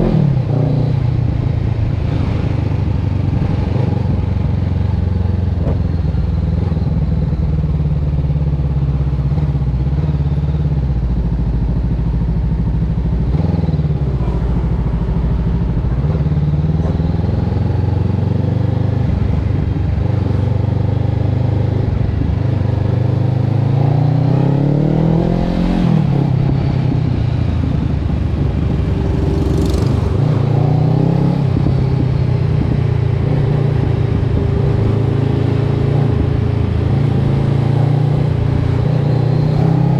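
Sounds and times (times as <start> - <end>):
motorcycle engine revving: 9.2 - 39.9.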